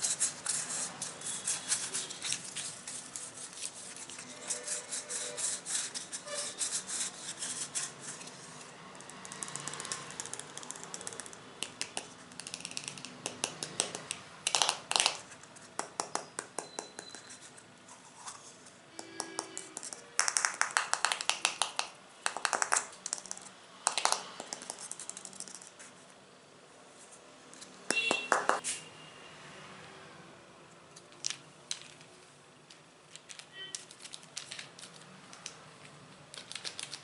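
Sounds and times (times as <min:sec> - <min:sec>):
tapping on small objects: 0:19.0 - 0:25.6.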